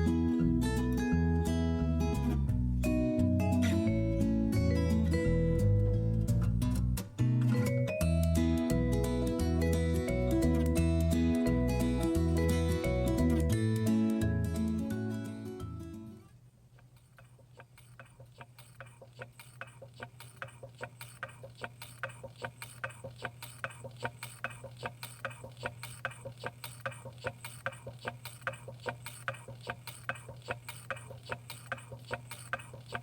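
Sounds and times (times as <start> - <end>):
steady low hum: 16.4 - 33.0
stirling engine parts ticking: 16.8 - 33.0.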